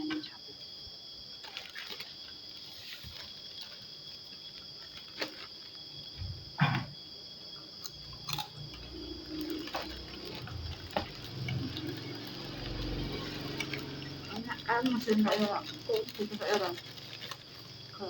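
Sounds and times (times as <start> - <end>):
high insect drone: 0.0 - 18.0
chewing and crunching food: 7.7 - 18.0.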